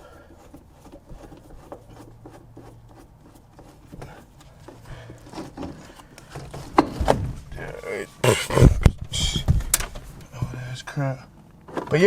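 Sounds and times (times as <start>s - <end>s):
clicks and rubbing on trim: 0.3s - 6.8s.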